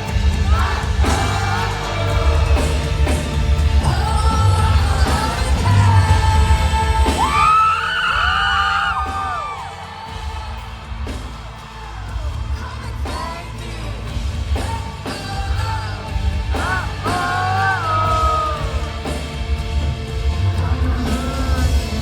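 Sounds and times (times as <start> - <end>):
person singing: 0.0 - 19.6, 20.2 - 22.0
bass and drums: 0.0 - 22.0
crowd whooping: 4.9 - 14.0.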